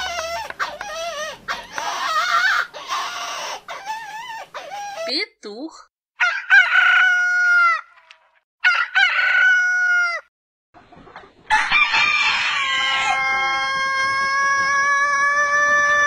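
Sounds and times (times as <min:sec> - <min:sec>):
rooster crowing: 0:06.2 - 0:07.9, 0:08.6 - 0:10.3, 0:11.5 - 0:16.0.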